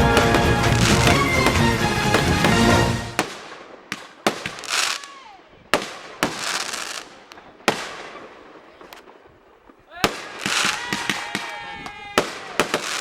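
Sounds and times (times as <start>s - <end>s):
falling firework whistle: 0.0s - 3.4s
fireworks bangs: 0.0s - 13.0s
fireworks crackling: 0.0s - 13.0s.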